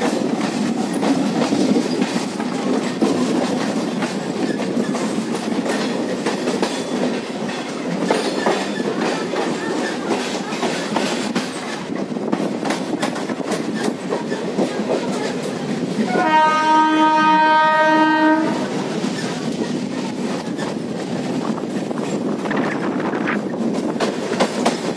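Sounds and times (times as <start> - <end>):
train rumble: 0.0 - 24.9
train wheels clickety-clack: 0.0 - 24.9
train horn: 16.0 - 18.9.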